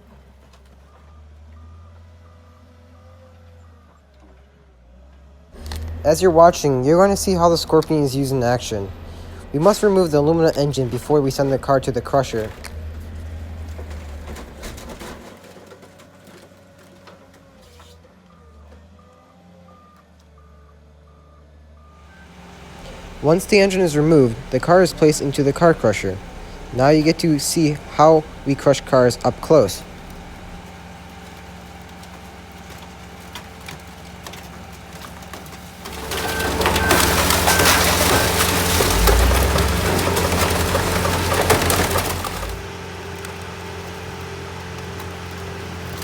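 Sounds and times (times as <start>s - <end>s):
excavator diesel engine running: 0.0s - 46.0s
crusher machinery humming: 4.9s - 19.0s, 22.0s - 46.0s
reversing alarm beeping: 18.3s - 30.6s, 35.9s - 40.6s
metal snapping and glass breaking: 32.0s - 42.6s.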